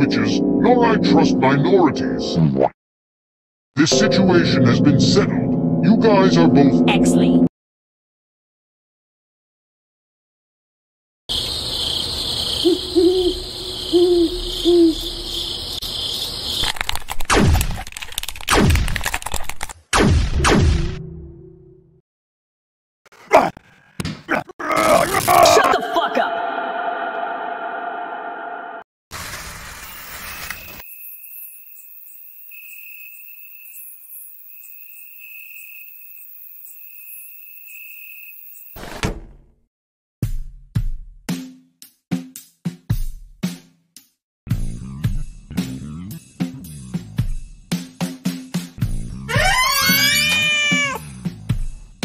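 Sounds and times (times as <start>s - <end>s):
crickets chirping: 11.3s - 17.1s, 30.6s - 38.8s
owl hooting: 12.4s - 15.4s, 49.3s - 51.0s.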